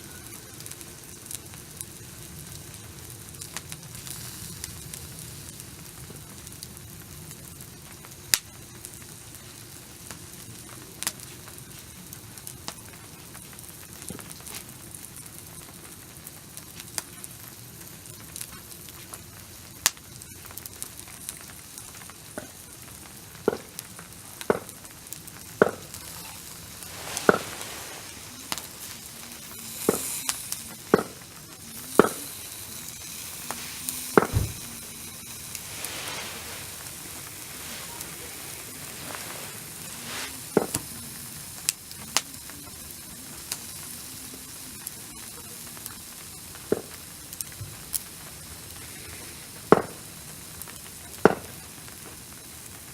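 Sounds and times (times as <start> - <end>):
food sizzling on a grill: 0.0 - 52.9.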